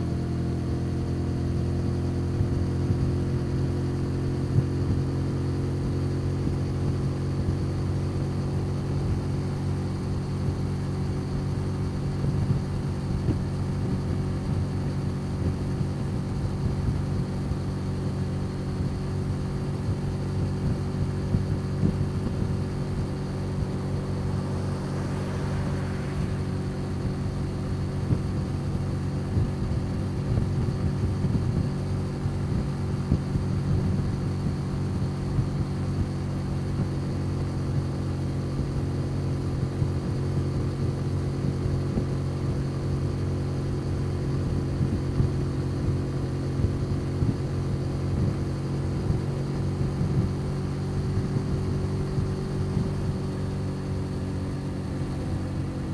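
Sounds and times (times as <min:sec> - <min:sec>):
motor scooter engine running: 0:10.2 - 0:55.9
passing vehicle noise: 0:20.8 - 0:30.6.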